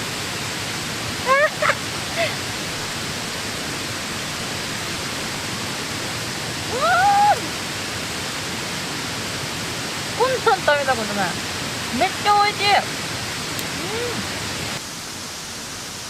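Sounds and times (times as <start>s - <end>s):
steady rushing noise: 0.0s - 16.0s
woman making sounds of delight: 6.7s - 7.5s, 13.7s - 14.2s.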